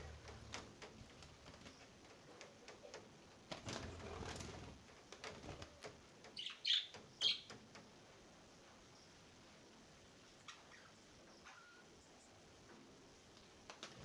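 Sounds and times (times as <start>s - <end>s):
bird wings fluttering: 0.1s - 2.0s, 3.4s - 6.0s, 13.6s - 14.0s.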